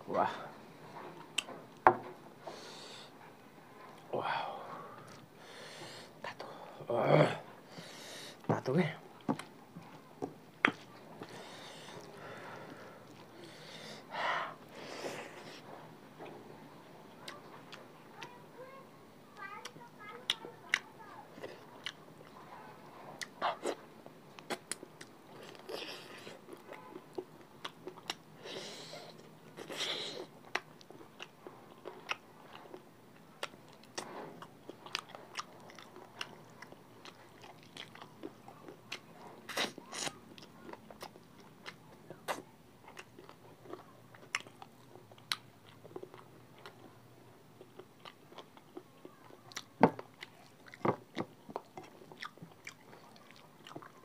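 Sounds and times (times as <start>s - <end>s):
chewing: 9.2s - 13.7s, 17.2s - 18.4s, 19.4s - 54.0s
wet mouth noises: 24.4s - 28.2s.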